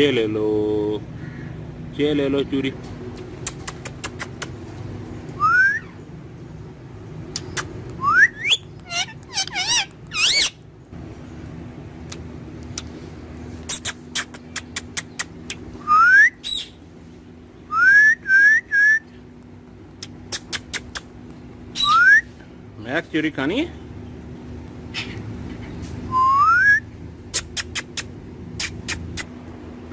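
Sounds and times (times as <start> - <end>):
parrot whistling: 5.4 - 6.0, 8.0 - 10.6, 15.8 - 16.8, 17.7 - 19.0, 21.8 - 22.3, 26.1 - 26.8
parrot warbling trill: 8.0 - 10.6, 21.8 - 22.2.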